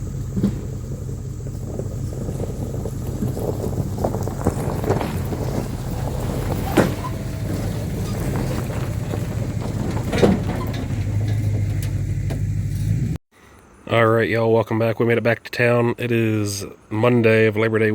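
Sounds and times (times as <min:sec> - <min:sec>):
wind buffeting microphone: 0:00.0 - 0:13.1
engine rumbling: 0:00.0 - 0:13.2.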